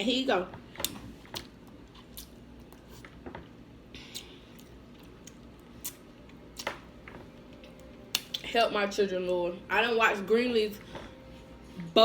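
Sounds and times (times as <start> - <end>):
chewing and mouth sounds: 0.8 - 3.2, 4.0 - 6.8.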